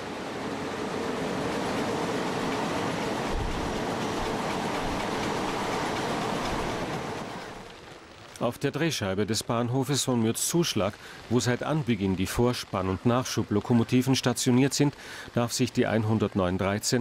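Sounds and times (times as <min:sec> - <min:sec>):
train wheels rushing on rails: 0:00.0 - 0:07.8.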